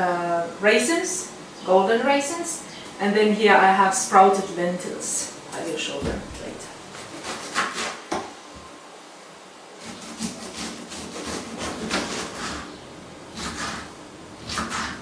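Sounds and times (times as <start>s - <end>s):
knife chopping on wooden board: 13.4s - 15.0s.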